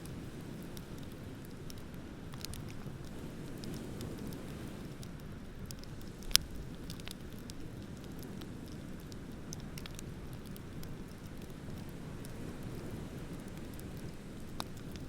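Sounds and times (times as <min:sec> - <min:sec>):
bonfire crackling and popping: 0:00.0 - 0:15.0.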